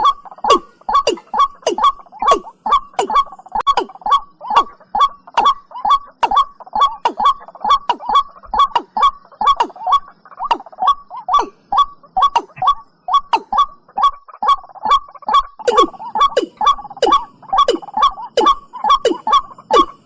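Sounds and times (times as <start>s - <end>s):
bird calling short notes: 0.0s - 13.8s, 14.9s - 20.0s
lower fuller bird notes: 14.9s - 20.0s.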